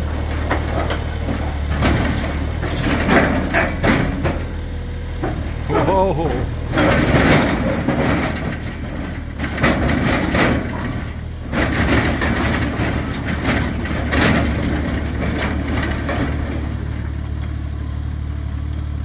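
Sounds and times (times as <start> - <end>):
excavator engine humming: 0.0 - 19.0
loud metal clanks and knocks: 0.4 - 5.6.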